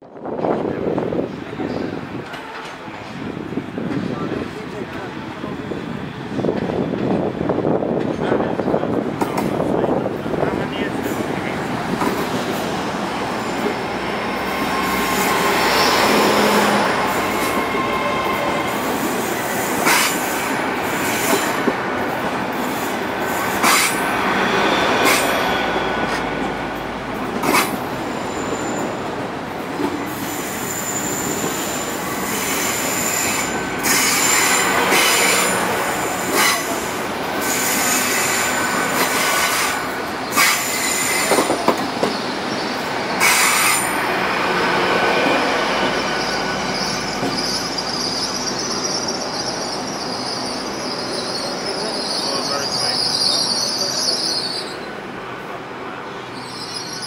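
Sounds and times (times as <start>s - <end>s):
train wheels on rails: 0.0s - 57.0s
high wheel squeal: 13.4s - 20.4s, 27.5s - 29.0s, 30.1s - 44.0s, 45.2s - 54.9s, 56.1s - 57.0s.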